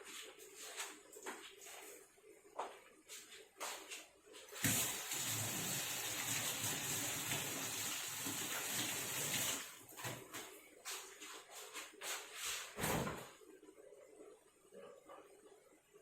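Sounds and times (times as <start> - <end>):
water running: 4.5 - 10.2.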